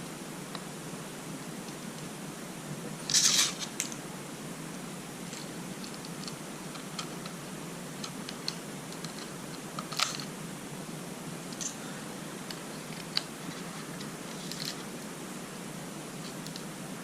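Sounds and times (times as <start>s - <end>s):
steady background hiss: 0.0s - 17.0s
small parts clicking and tapping: 3.1s - 4.0s, 5.3s - 7.4s, 8.0s - 10.3s, 11.5s - 11.8s, 12.4s - 14.9s, 16.2s - 16.7s.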